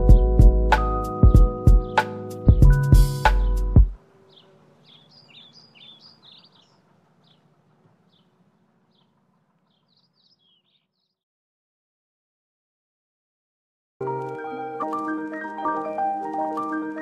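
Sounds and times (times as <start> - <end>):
faint bird chirps: 4.1 - 11.2.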